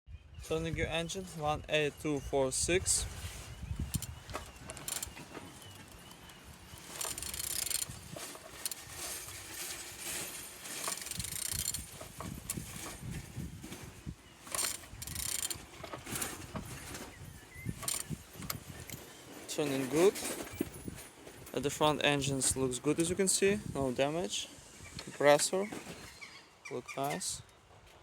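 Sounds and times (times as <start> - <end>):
mechanical clicking and scraping: 3.8 - 13.1, 14.4 - 20.9
engine turned over by hand: 3.8 - 21.0.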